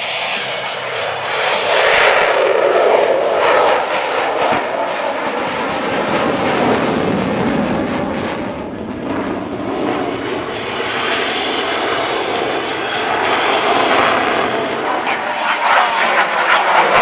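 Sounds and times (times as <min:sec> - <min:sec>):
fighter jet roar flying past: 0:00.0 - 0:17.0.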